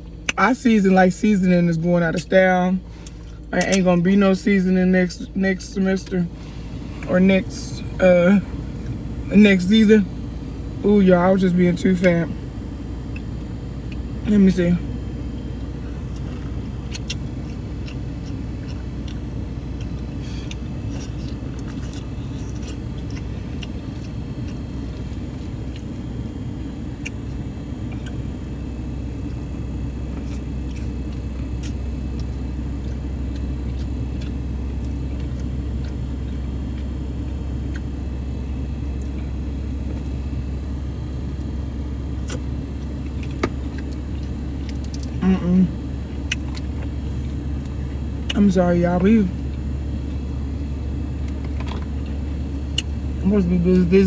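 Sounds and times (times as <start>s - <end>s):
car engine rumble: 0.0s - 54.0s.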